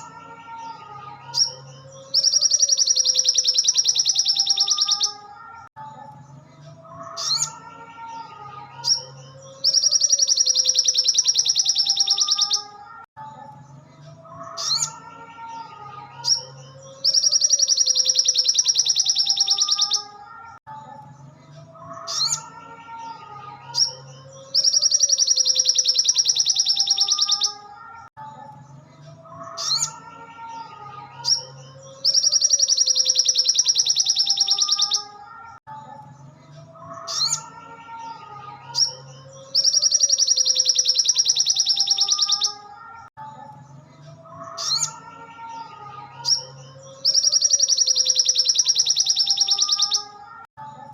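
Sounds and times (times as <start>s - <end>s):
sharp bird chirps: 1.3s - 5.2s, 8.8s - 12.8s, 16.3s - 20.2s, 23.8s - 27.7s, 31.3s - 35.6s, 38.8s - 42.7s, 46.3s - 50.2s.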